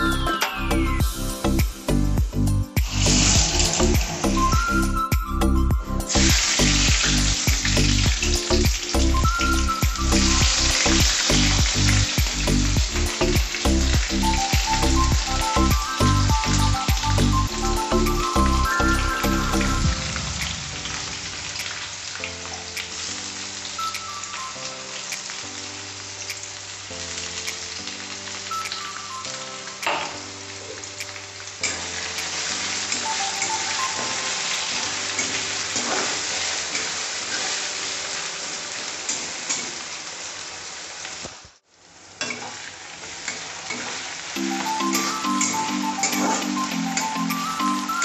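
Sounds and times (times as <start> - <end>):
faint background music: 0.0 - 39.9, 43.2 - 48.0
onions sizzling in oil: 2.8 - 5.1, 6.0 - 48.0
spatula scraping pan: 35.2 - 37.6.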